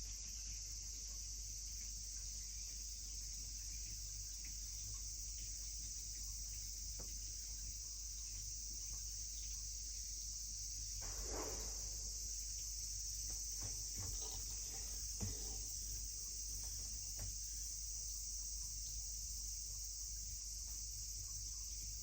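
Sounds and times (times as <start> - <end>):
high-pitched hiss: 0.0 - 22.0
washing machine hum: 0.1 - 22.0
soft knock: 13.6 - 15.7.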